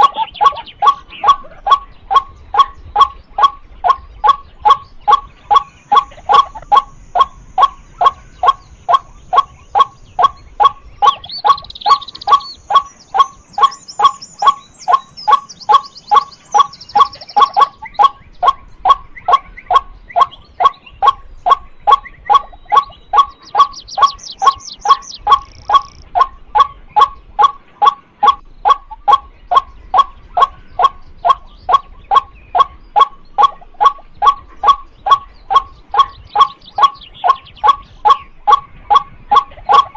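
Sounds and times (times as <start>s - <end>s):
small birds chirping: 0.0s - 39.9s
waterhen calling kwak: 0.0s - 39.9s.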